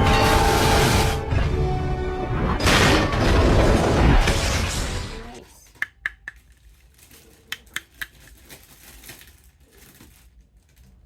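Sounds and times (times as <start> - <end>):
packaging rustling: 6.2 - 11.0.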